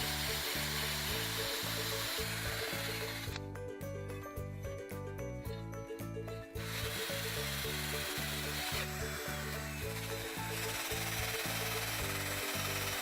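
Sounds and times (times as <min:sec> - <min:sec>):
wire brush grinding on metal: 0:00.0 - 0:03.4, 0:06.6 - 0:13.0
background music: 0:00.0 - 0:13.0.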